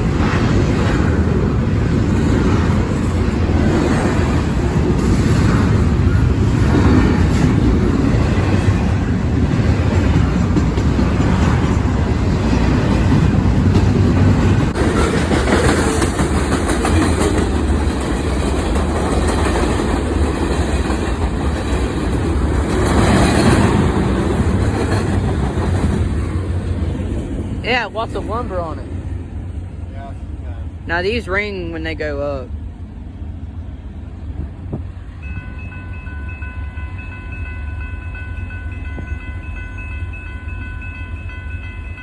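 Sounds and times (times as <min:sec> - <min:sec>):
freight train wheels clattering: 0:00.0 - 0:28.9.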